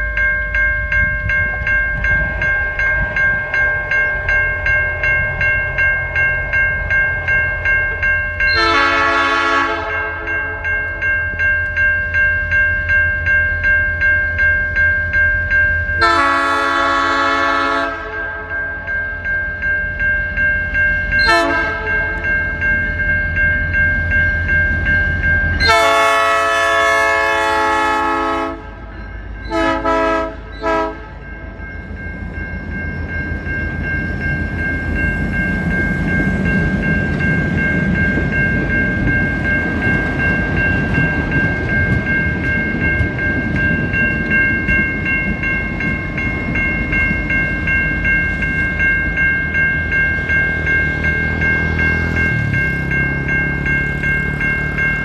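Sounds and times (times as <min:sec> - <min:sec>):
high ringing tone: 0:00.0 - 0:55.0
train rumbling: 0:00.0 - 0:55.0
train horn blasts: 0:08.5 - 0:10.3, 0:16.0 - 0:18.5, 0:21.2 - 0:21.9, 0:25.6 - 0:28.8, 0:29.5 - 0:31.2.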